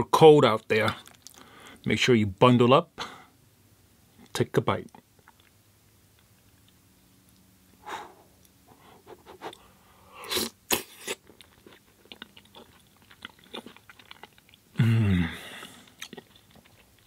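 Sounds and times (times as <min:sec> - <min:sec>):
person chewing food: 0:00.9 - 0:01.6, 0:04.9 - 0:14.8, 0:15.4 - 0:17.0.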